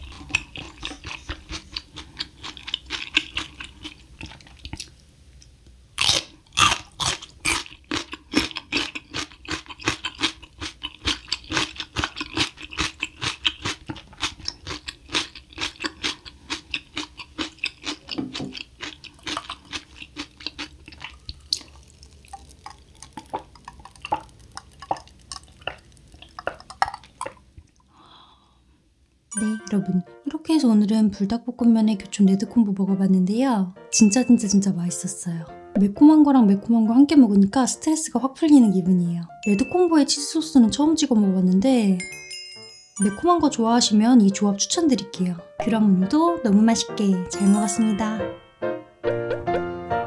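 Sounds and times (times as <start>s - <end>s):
person chewing food: 0.0s - 28.4s.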